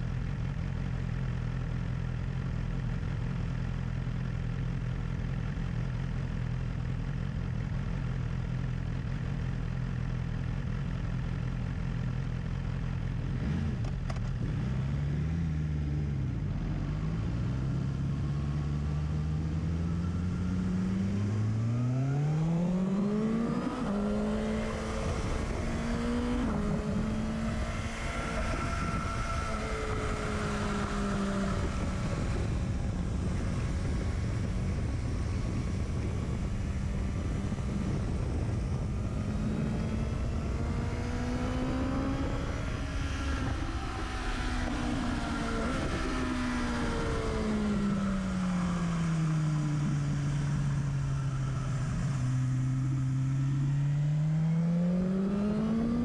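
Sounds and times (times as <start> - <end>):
motorcycle engine at speed: 0.0 - 56.0
wind rush on microphone: 24.7 - 52.1.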